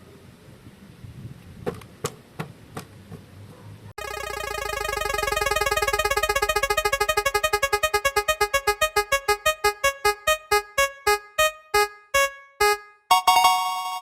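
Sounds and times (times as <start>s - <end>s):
repeated electronic keyboard note: 4.0s - 14.0s.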